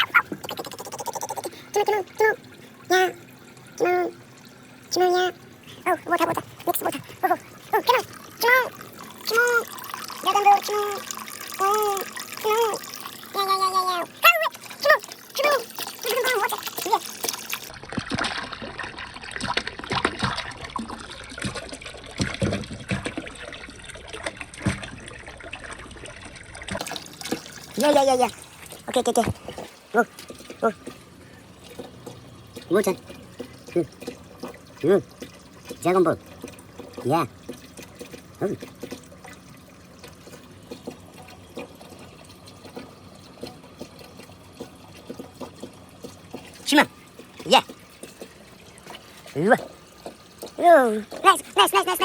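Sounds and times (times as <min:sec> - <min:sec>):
water trickling and splashing: 0:00.0 - 0:52.0
small knocks and plops: 0:19.3 - 0:25.1, 0:28.6 - 0:51.5.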